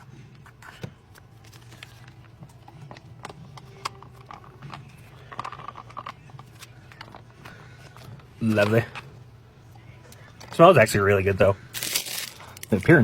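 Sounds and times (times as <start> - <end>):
low steady hum: 0.0 - 13.0
foil pouch crinkling: 11.7 - 12.9.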